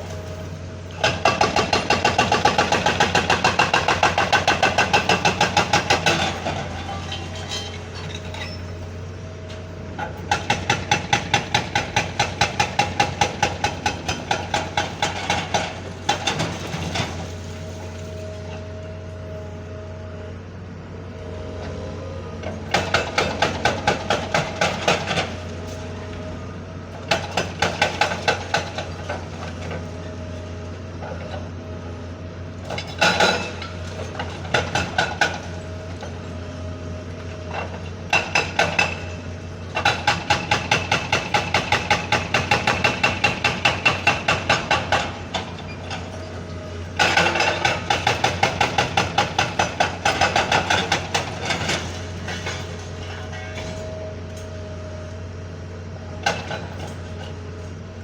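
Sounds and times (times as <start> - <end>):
hydraulic breaker hammering concrete: 1.0 - 6.6, 10.3 - 17.3, 22.7 - 25.4, 27.0 - 29.3, 32.9 - 35.6, 38.1 - 45.6, 47.0 - 52.8
diesel engine humming: 13.8 - 27.1.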